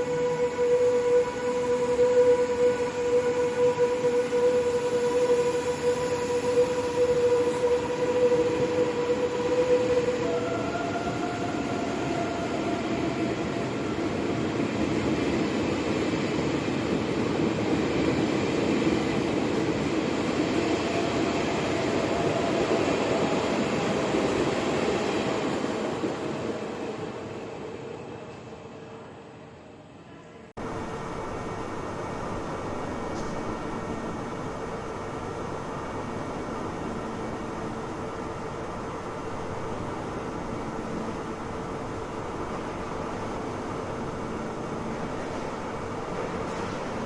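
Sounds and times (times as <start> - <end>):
train whine: 0.0 - 47.0
train rumble: 30.6 - 47.0.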